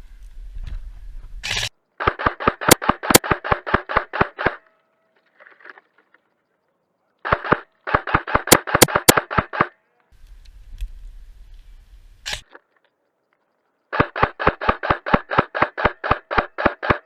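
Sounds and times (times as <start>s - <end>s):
sharp cracks: 1.4s - 4.7s, 7.2s - 9.8s, 13.9s - 17.0s
airsoft gun rapid shots: 2.0s - 4.6s, 7.2s - 9.7s, 13.9s - 17.0s.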